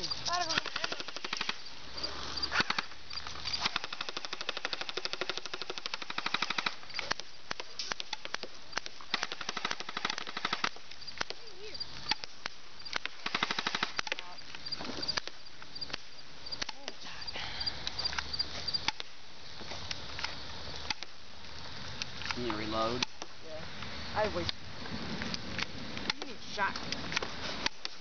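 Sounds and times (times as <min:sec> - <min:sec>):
airsoft guns firing: 0:00.0 - 0:01.7, 0:02.4 - 0:17.0.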